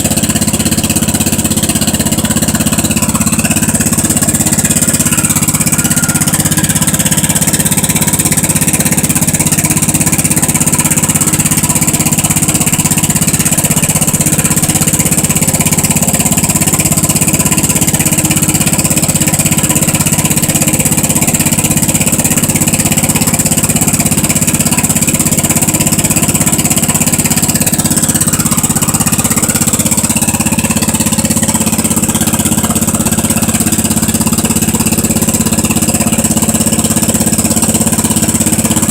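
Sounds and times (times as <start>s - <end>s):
garden tractor engine running: 0.0s - 38.9s.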